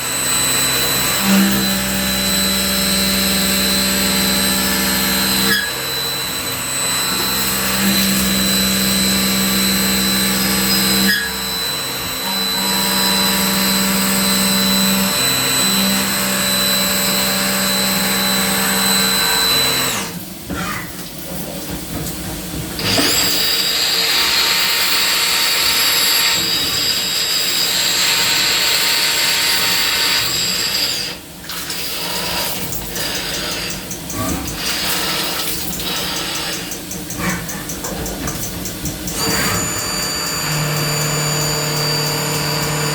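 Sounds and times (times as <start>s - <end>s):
milling spindle whine: 0.0s - 20.1s, 39.1s - 42.9s
metal cutting noise: 0.0s - 20.2s, 22.8s - 42.9s.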